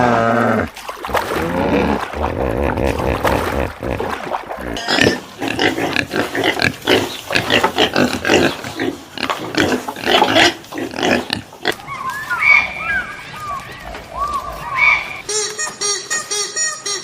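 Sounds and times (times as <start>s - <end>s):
pig grunting: 0.0s - 11.9s.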